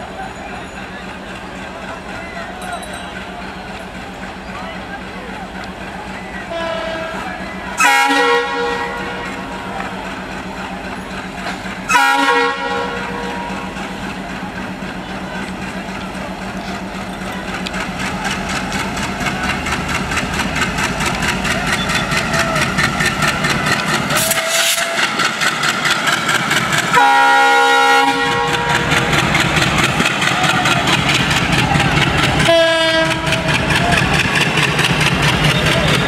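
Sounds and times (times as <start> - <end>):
locomotive engine rumble: 0.0 - 36.0
train horn: 6.4 - 9.7, 11.9 - 13.8, 24.2 - 25.2, 26.9 - 29.2, 32.4 - 33.6
wheels clacking over rail joints: 8.5 - 12.7, 13.3 - 36.0.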